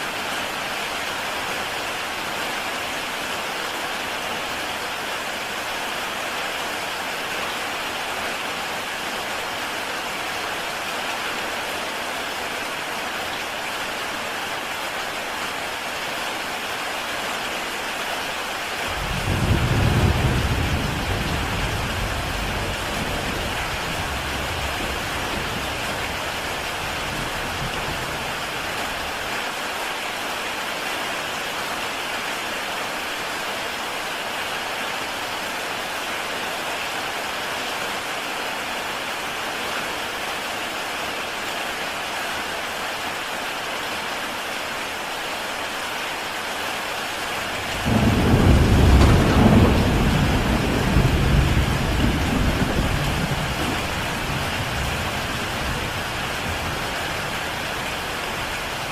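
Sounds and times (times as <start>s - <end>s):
heavy rain on tile roof: 0.0s - 58.9s
thunder rumble: 18.9s - 28.1s, 47.6s - 56.9s.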